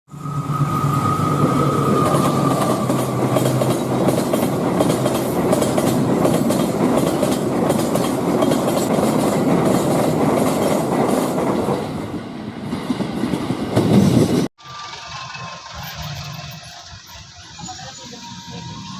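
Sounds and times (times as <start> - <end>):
steady high tone: 0.1 - 4.9
train rumbling past: 0.1 - 18.9
wheels clacking over rail joints: 1.2 - 12.1.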